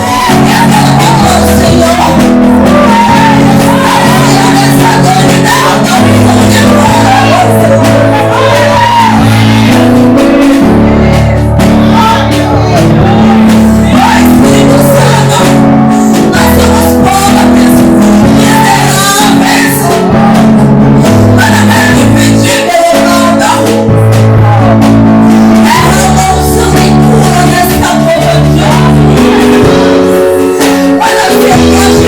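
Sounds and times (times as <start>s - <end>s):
band playing sustained chords: 0.0s - 22.4s
person singing: 0.0s - 32.0s.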